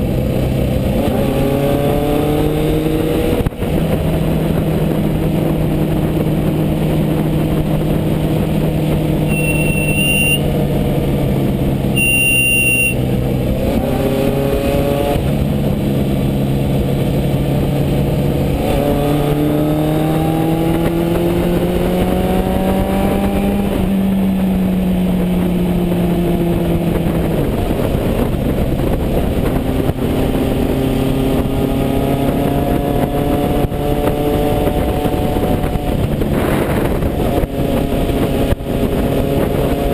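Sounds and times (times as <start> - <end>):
motorcycle engine accelerating: 0.0 - 39.9
brake squeal: 9.2 - 10.5, 12.0 - 13.0.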